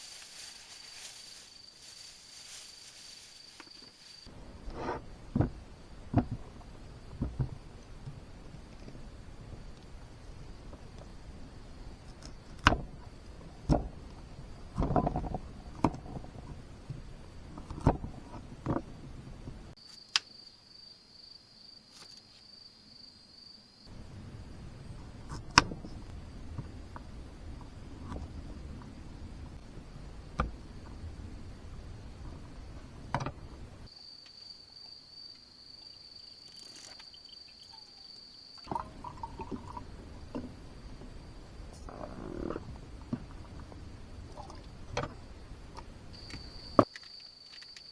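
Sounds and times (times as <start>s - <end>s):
rustling clatter: 0.0s - 9.0s
sharp knocks and clunks: 4.7s - 8.2s, 30.3s - 33.9s
cricket trilling: 19.8s - 47.9s.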